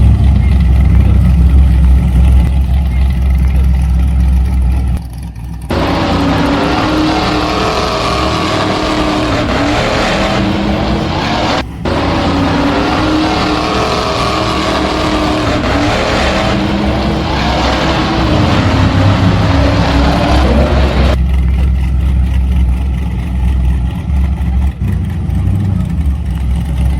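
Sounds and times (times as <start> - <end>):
loud rushing noise: 5.7 - 21.2.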